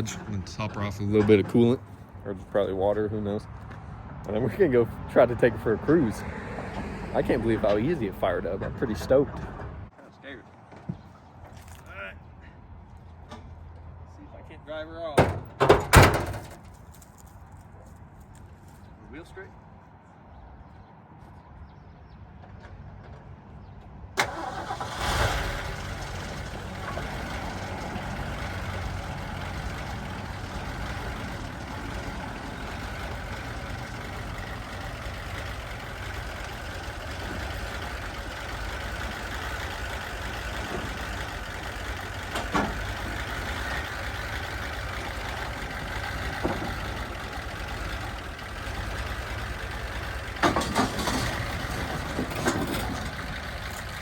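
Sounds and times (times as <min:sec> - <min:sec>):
truck engine starting and running: 0:00.0 - 0:09.9, 0:15.2 - 0:17.3, 0:23.6 - 0:54.0.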